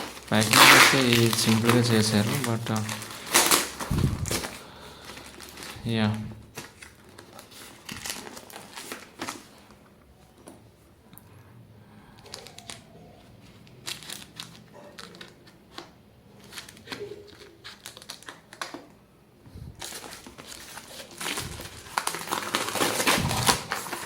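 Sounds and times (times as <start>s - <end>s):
packaging crinkled and torn: 0.0s - 9.7s, 12.2s - 18.9s, 19.8s - 24.0s.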